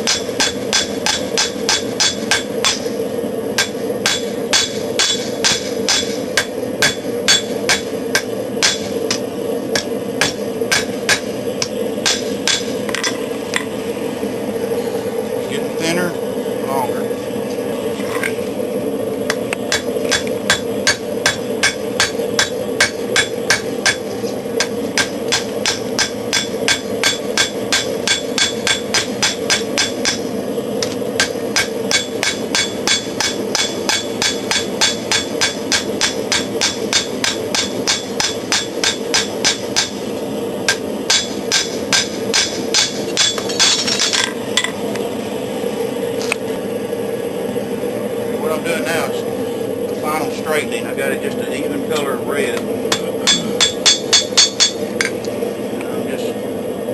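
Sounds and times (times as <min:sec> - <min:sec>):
hammer striking steel on anvil: 0:00.0 - 0:02.9, 0:03.6 - 0:13.2, 0:19.7 - 0:30.2, 0:31.2 - 0:40.0, 0:40.7 - 0:44.8, 0:52.9 - 0:55.2
gas forge rushing: 0:00.0 - 0:56.9.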